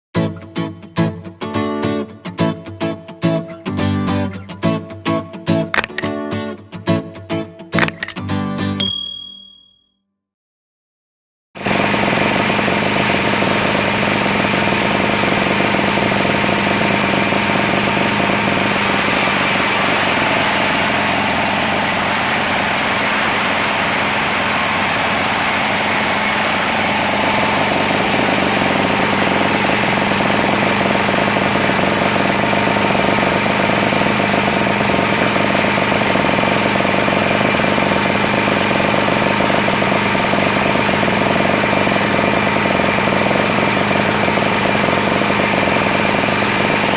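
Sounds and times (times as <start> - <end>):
sawmill machinery drone: 11.6 - 46.9
machinery whine: 12.0 - 36.4.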